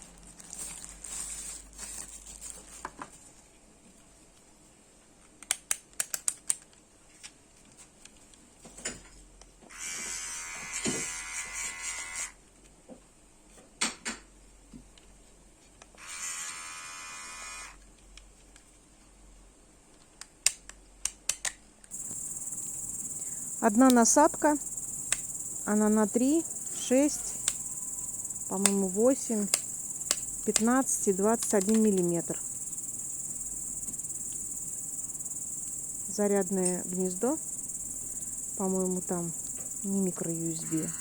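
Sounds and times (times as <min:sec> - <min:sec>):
electric hair clipper buzzing: 0:09.8 - 0:12.3, 0:16.0 - 0:17.7.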